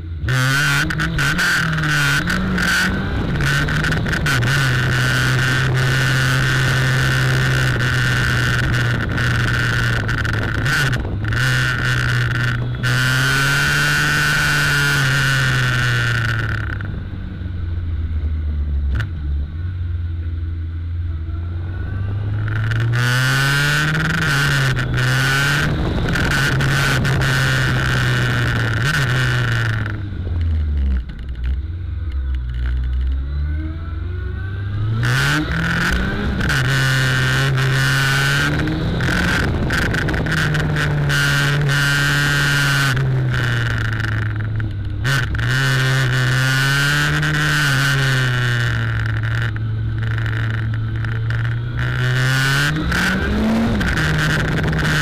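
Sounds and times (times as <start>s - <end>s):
motorcycle engine revving: 0.0s - 55.0s
buzzing battery rattle: 0.8s - 16.9s, 35.1s - 55.0s.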